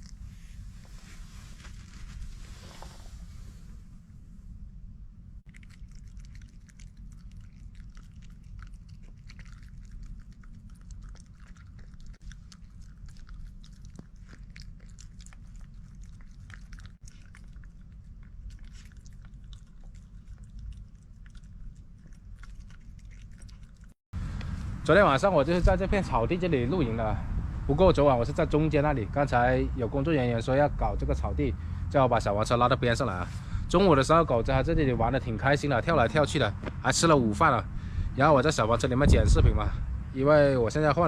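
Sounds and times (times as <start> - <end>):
low hum: 0.0 - 40.4
person chewing food: 5.5 - 24.1.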